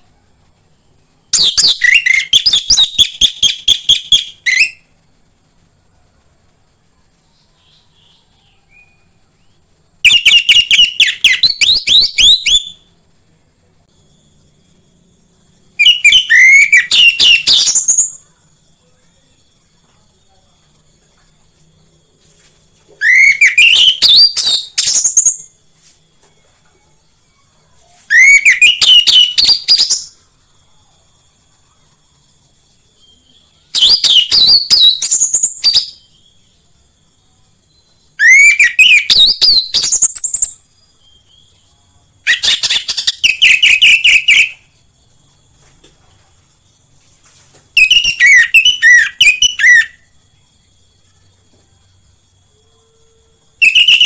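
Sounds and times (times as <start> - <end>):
faint high hiss: 0.0 - 54.0.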